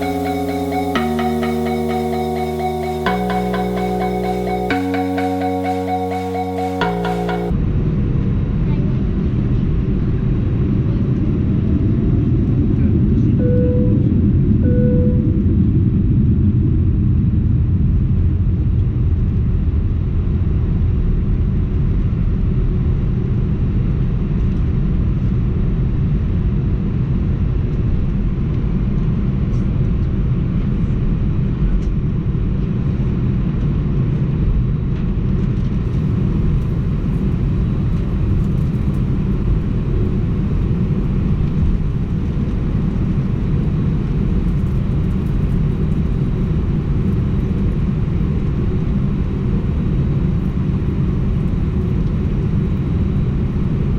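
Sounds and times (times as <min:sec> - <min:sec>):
airplane cabin engine rumble: 0:35.9 - 0:53.9.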